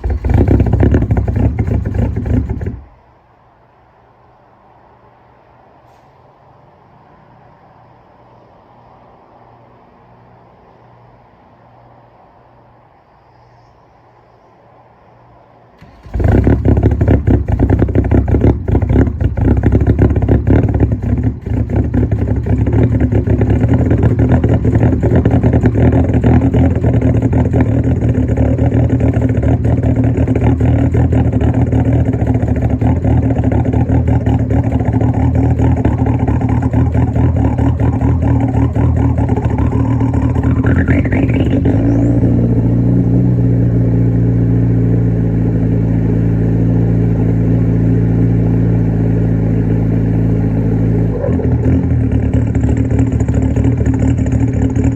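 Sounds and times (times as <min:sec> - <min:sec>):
diesel engine clatter: 0:00.0 - 0:03.4, 0:15.8 - 0:54.9.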